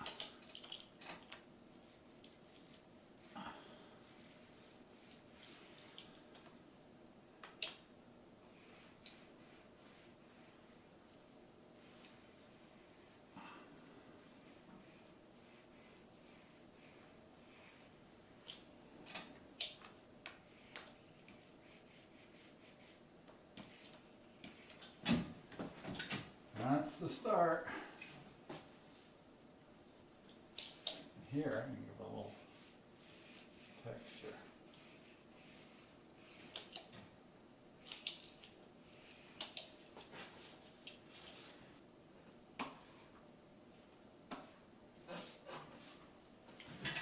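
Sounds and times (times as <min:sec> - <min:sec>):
paint rubbing strokes on wall: 0:01.7 - 0:06.3, 0:08.4 - 0:11.1, 0:11.7 - 0:18.5, 0:20.4 - 0:24.9, 0:31.5 - 0:36.9, 0:38.9 - 0:41.8, 0:44.4 - 0:46.2.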